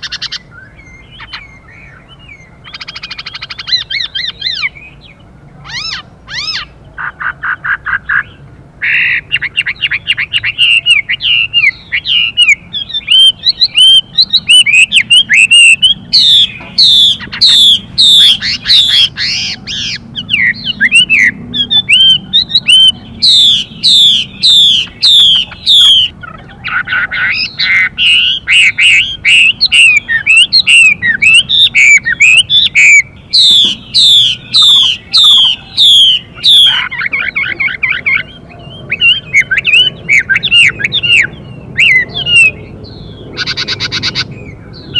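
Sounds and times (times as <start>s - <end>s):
bird singing whistled notes: 0.0s - 6.8s, 7.8s - 44.9s.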